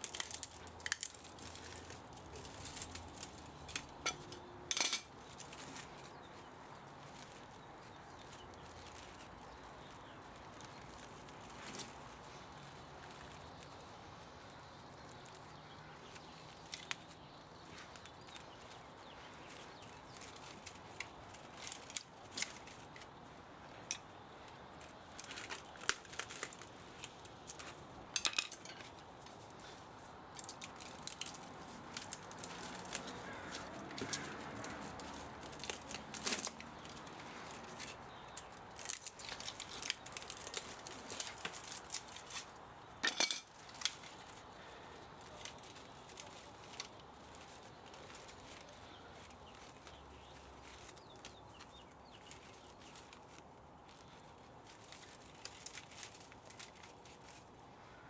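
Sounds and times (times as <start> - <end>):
hand tools clicking and scraping metal: 0.0 - 6.0, 24.8 - 29.3, 30.4 - 44.4.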